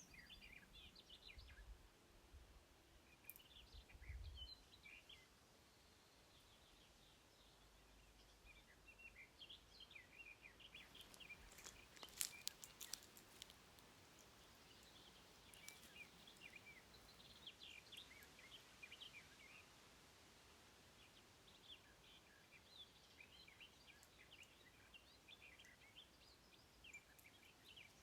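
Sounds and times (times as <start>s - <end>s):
faint birdsong chirps: 0.0s - 28.0s
sharp light clicks: 11.0s - 16.6s.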